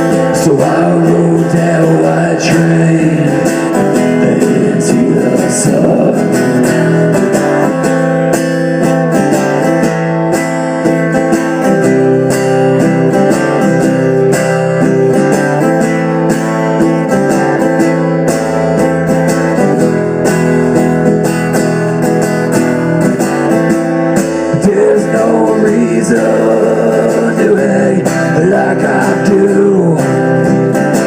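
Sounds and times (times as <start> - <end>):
guitar strumming chords: 0.0 - 31.0.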